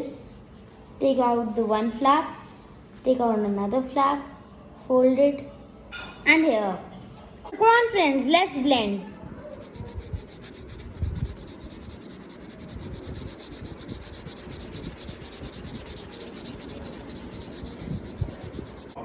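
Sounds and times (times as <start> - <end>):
tissue paper rubbing on paper: 9.0 - 19.0.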